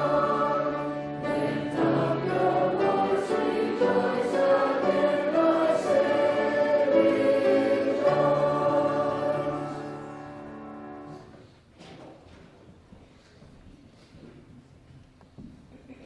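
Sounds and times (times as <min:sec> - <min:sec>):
church choir singing: 0:00.0 - 0:11.4.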